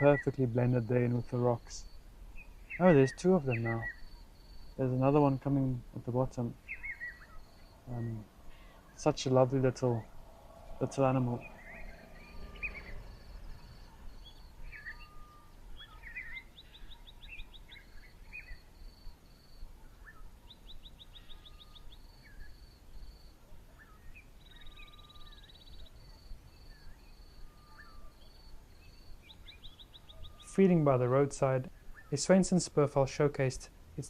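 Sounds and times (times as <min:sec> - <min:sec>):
birds chirping and whistling: 0:00.0 - 0:04.8, 0:06.6 - 0:19.0, 0:19.8 - 0:22.6, 0:23.8 - 0:30.6.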